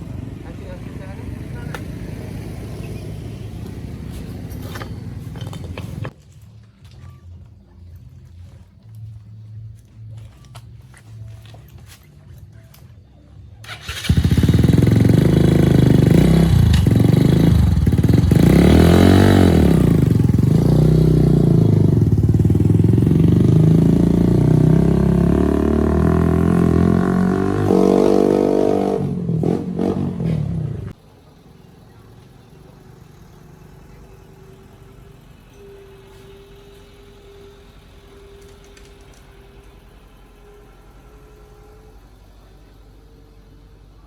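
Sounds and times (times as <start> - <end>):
motorcycle engine revving: 0.0 - 6.1, 13.6 - 44.0.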